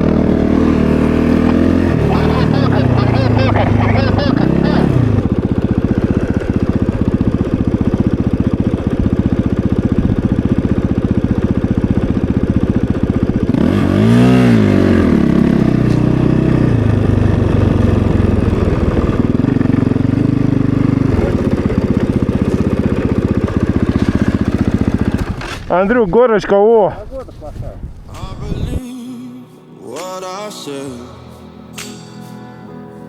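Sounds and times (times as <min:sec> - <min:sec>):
dirt bike engine revving: 0:00.0 - 0:26.3.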